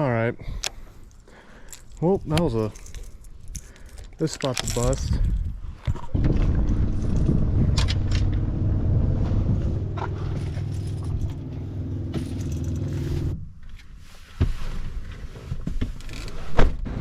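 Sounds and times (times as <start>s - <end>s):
truck engine running: 6.5s - 13.4s.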